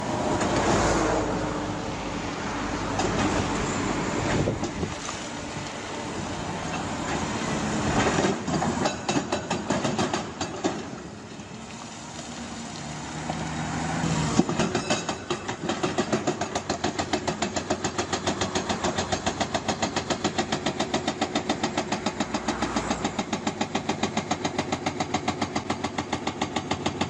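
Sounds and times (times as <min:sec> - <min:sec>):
excavator engine running: 0:00.0 - 0:27.0
rapid metallic clanks and knocks: 0:08.0 - 0:11.0, 0:14.4 - 0:27.0.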